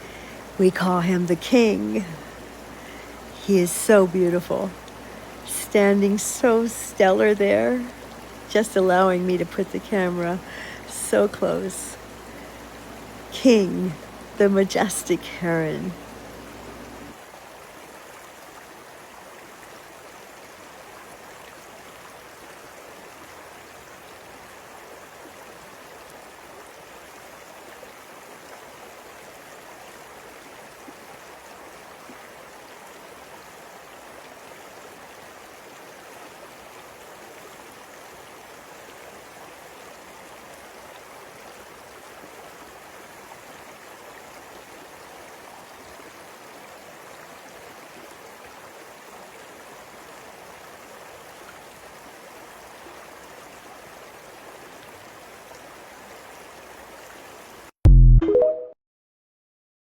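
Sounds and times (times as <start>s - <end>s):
river water flowing: 0.0s - 57.8s.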